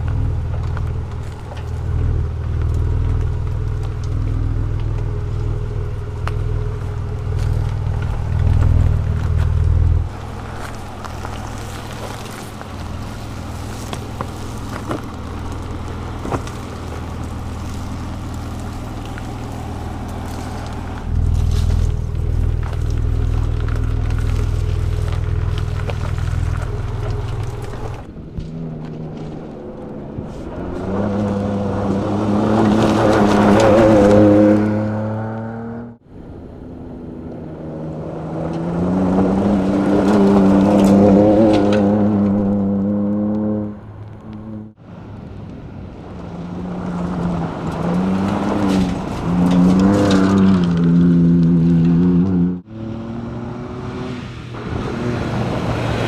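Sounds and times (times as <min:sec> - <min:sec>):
engine running under load: 0:00.0 - 0:56.0.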